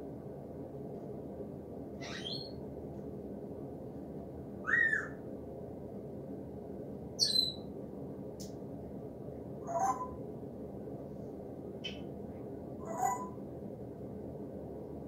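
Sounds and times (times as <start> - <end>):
low background rumble: 0.0 - 15.0
high bird calls: 2.0 - 2.6, 4.6 - 5.2, 7.2 - 7.6, 9.6 - 10.2, 12.8 - 13.4.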